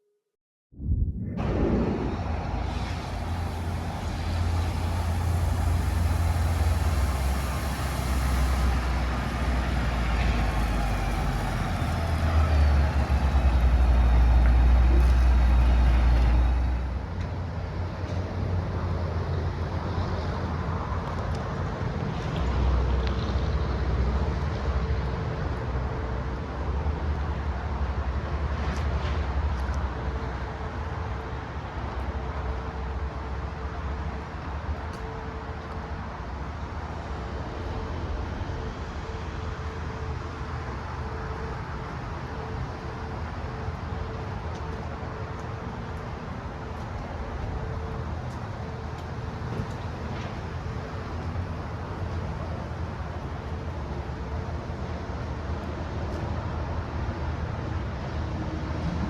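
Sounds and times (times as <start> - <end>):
truck engine rumbling: 0.8 - 20.8.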